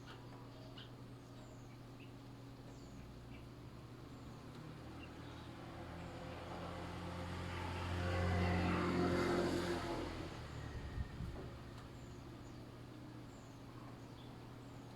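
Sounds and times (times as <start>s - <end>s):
vehicle engine passing by: 4.6s - 11.8s.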